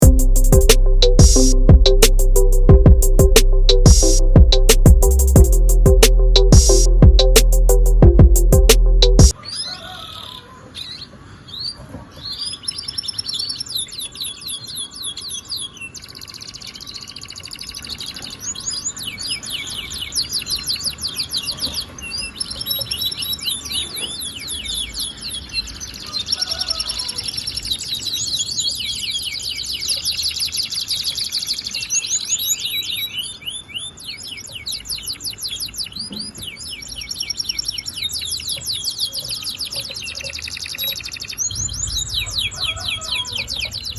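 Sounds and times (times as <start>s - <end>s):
canary singing trills: 9.3s - 43.9s.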